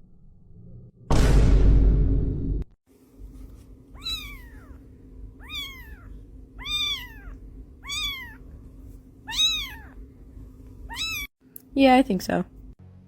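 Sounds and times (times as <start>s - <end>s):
cat meowing: 4.0s - 4.8s, 5.4s - 8.4s, 9.2s - 10.0s, 10.9s - 11.3s.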